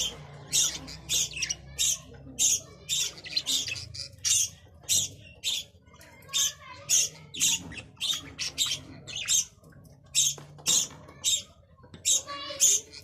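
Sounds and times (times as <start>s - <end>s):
budgerigars chirping: 0.0s - 5.8s.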